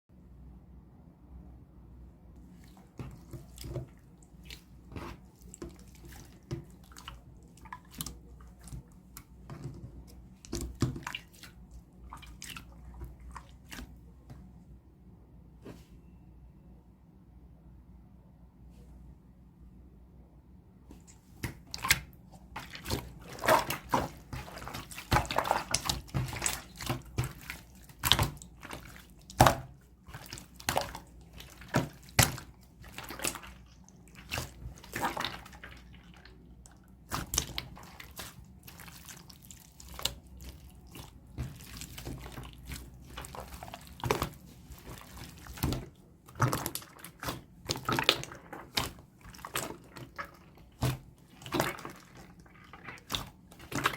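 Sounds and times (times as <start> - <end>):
slime squelching and popping: 21.0 - 53.9.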